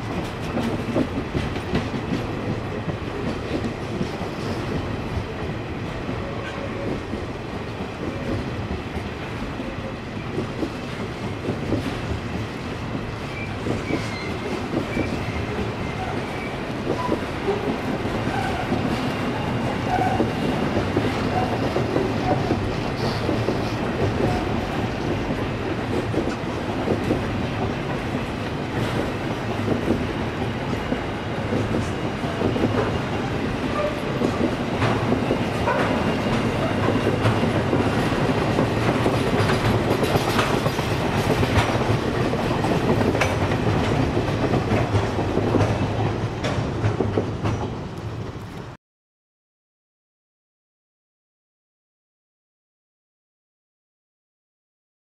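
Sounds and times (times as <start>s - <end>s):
train wheels rumbling on rail: 0.0s - 48.8s
wheels clicking over track: 33.7s - 48.0s.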